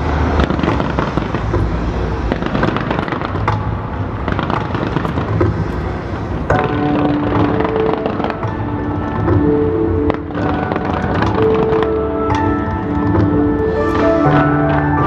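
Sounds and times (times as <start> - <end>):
fireworks booms: 0.0 - 8.8
fireworks crackling and popping: 0.0 - 15.0.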